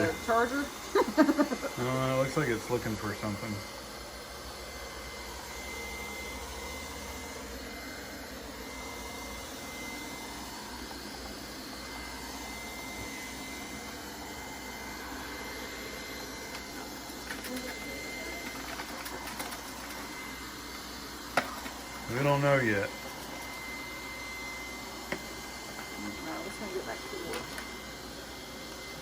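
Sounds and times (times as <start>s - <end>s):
robot vacuum cleaner whirring: 0.0s - 29.0s.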